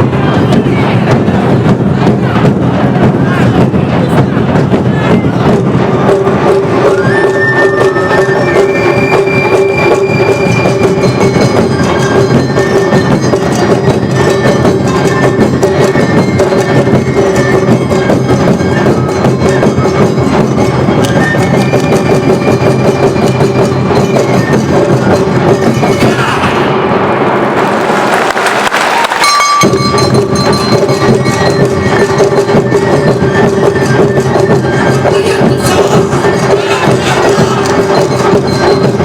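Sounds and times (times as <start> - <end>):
drums beating: 0.0 - 39.0
bamboo flute notes: 6.7 - 13.0, 14.1 - 25.4, 29.2 - 39.0
clanging bell: 7.6 - 25.9, 29.2 - 35.0, 35.9 - 39.0.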